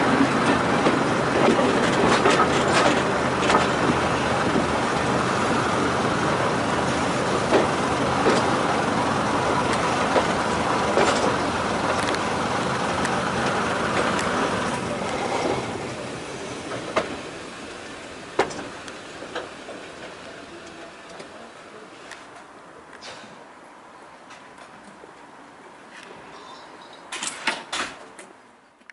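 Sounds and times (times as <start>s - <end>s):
train running rumble: 0.0s - 21.8s.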